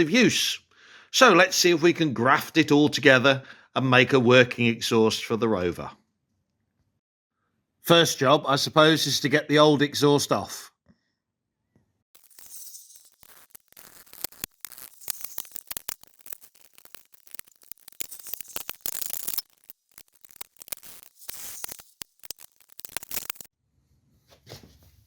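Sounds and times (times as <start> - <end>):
metallic tool clicks and scrapes: 12.2 - 23.5
scratchy hiss: 12.2 - 23.5.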